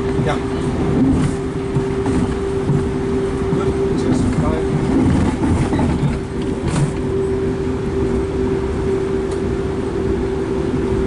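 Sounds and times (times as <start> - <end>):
constant hum: 0.0 - 11.0
train wheels rumbling on track: 0.0 - 11.0.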